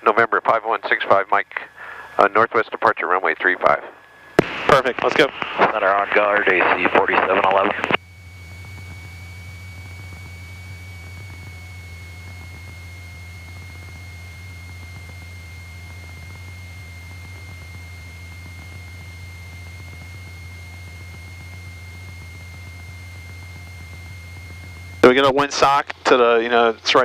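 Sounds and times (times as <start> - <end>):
intercom hiss: 0.0 - 8.0
aircraft engine low drone: 0.0 - 27.0
high-pitched whine: 0.0 - 27.0.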